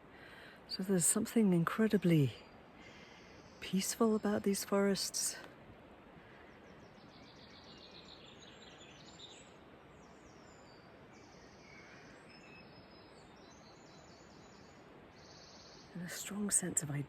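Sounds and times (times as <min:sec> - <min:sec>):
soft hiss: 0:00.0 - 0:17.0
small birds high-pitched calls: 0:06.3 - 0:17.0.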